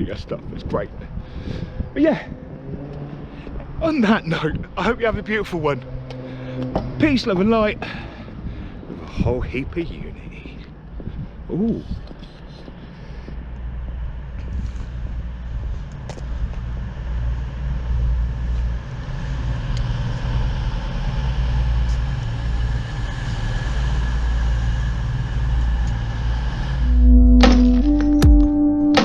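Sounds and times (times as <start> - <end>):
diesel train rumbling past: 13.4 - 28.0
outro music: 26.8 - 29.0.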